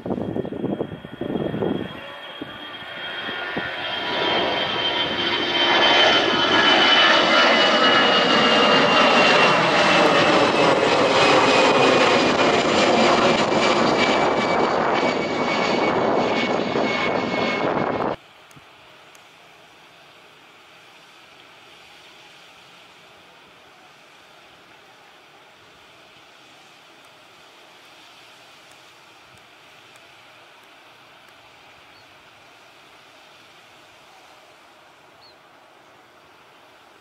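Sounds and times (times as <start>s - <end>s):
high engine whine: 0.0s - 18.4s
airliner engine noise: 0.0s - 37.0s.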